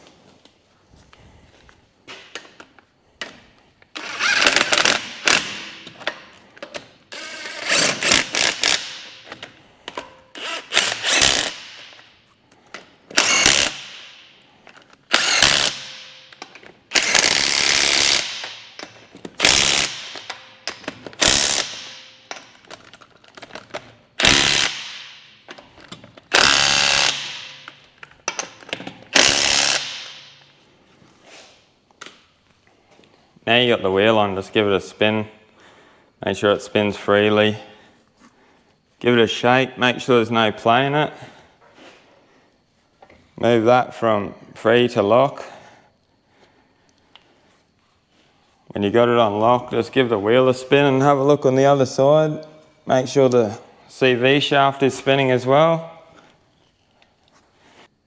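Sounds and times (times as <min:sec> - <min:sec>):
impact wrench bursts: 0:04.0 - 0:06.0, 0:06.8 - 0:09.5, 0:10.3 - 0:12.1, 0:13.1 - 0:14.4, 0:15.0 - 0:22.7, 0:24.2 - 0:25.5, 0:26.2 - 0:27.8, 0:28.4 - 0:30.4.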